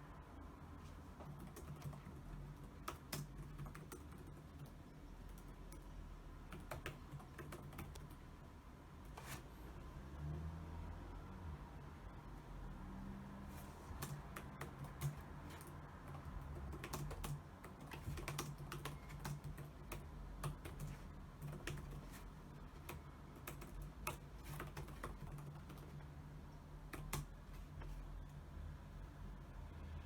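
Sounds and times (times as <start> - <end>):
low steady hum: 0.0 - 30.0
typing on keyboard: 1.1 - 8.2, 13.8 - 26.2, 26.8 - 28.0.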